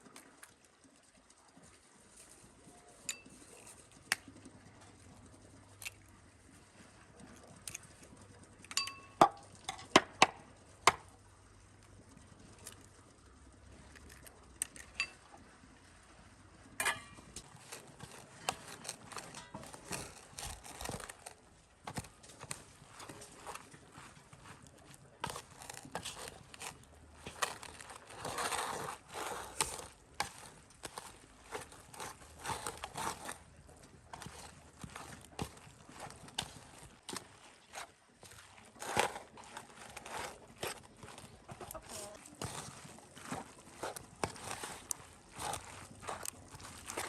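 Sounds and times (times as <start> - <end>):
small crackling and rustling: 0.0 - 47.0
ringing clinks: 8.7 - 9.2
light knocks and clinks: 8.7 - 10.0.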